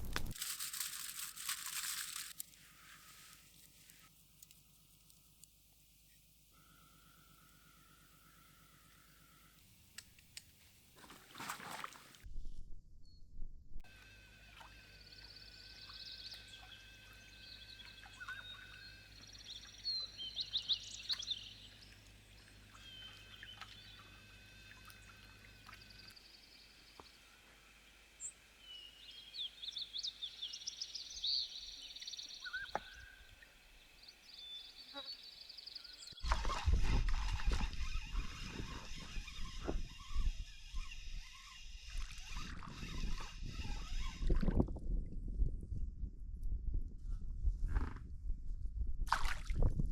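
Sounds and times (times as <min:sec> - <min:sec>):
faint low hum: 0:00.0 - 0:48.9
songbirds singing and chirping: 0:14.8 - 0:27.2, 0:28.2 - 0:36.4.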